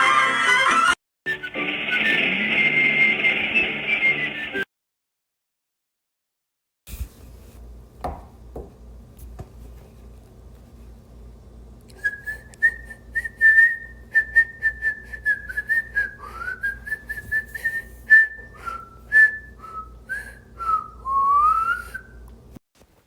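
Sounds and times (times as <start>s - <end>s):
person whistling a tune: 1.3s - 4.7s, 12.0s - 22.2s.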